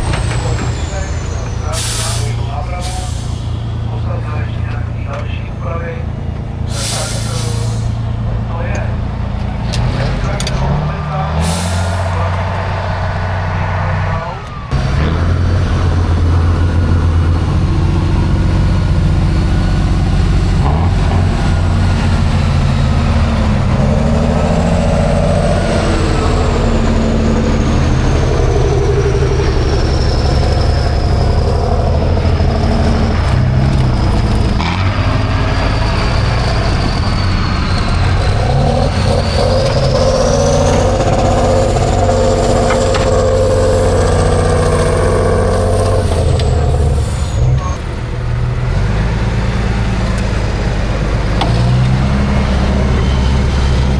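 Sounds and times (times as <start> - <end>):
truck engine revving: 0.0 - 53.9
high whine: 20.4 - 48.2.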